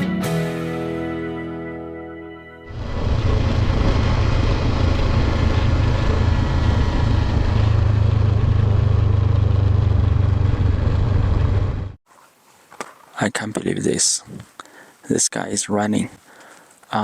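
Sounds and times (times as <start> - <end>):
motorcycle engine rumble: 2.7 - 12.0
wind noise: 2.7 - 12.0.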